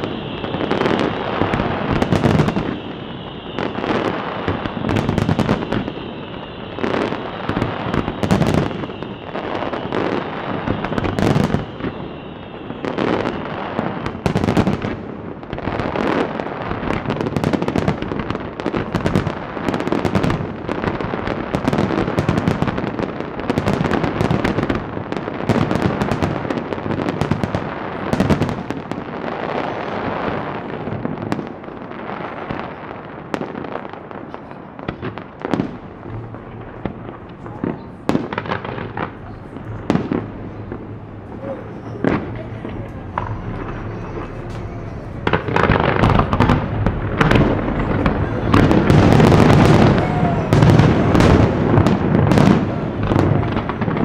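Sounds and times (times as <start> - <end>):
firework crackling: 0.0 - 54.0
firework shells bursting: 35.0 - 54.0
high whine: 39.0 - 53.1.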